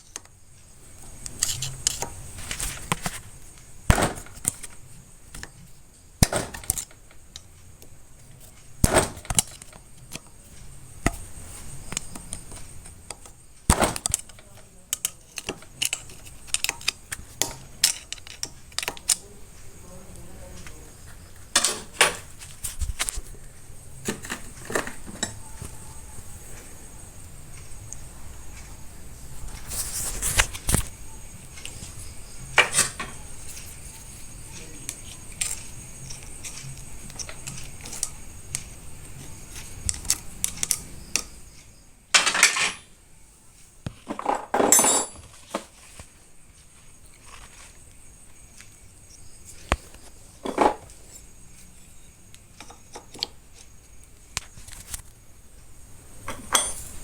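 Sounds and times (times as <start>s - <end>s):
metal scraping rasps: 0.9s - 5.6s
metal tools clinking: 11.9s - 19.2s, 42.2s - 42.9s, 44.1s - 45.6s, 56.3s - 57.0s.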